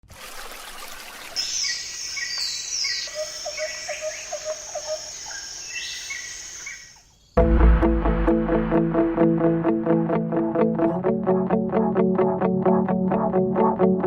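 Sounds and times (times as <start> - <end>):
birds calling: 1.4 - 7.3.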